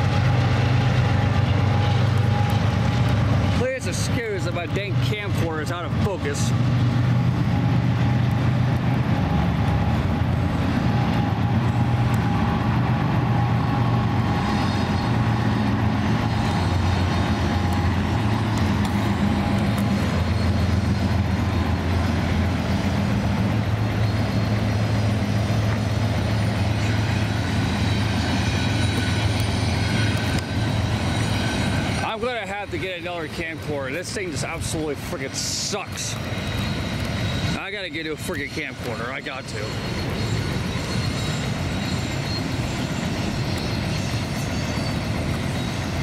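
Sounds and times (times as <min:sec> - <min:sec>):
diesel locomotive engines droning: 0:00.0 - 0:46.0
train rumbling on rails: 0:00.0 - 0:46.0
faint high squeals: 0:35.9 - 0:46.0.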